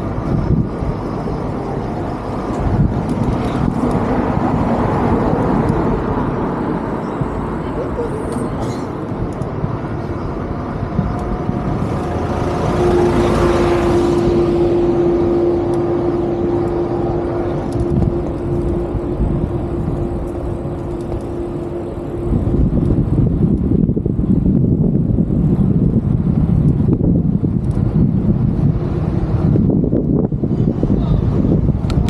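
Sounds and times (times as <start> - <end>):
vehicle passing: 0.0 - 23.5
steady traffic hum: 0.0 - 32.0.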